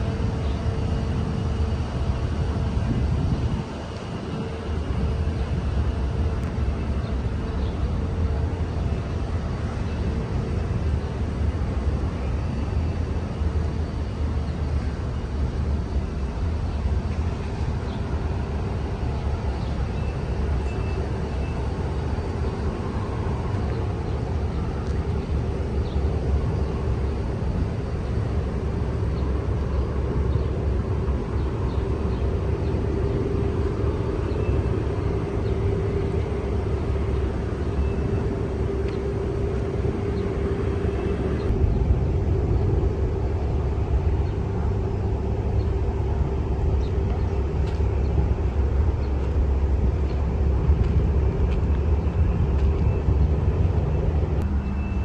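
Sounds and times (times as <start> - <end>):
steady hum: 0.0 - 55.0
distant traffic rumble: 16.1 - 55.0.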